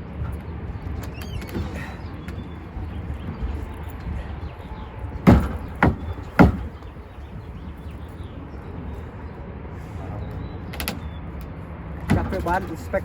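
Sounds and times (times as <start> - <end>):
sharp knocks: 5.2 - 6.8.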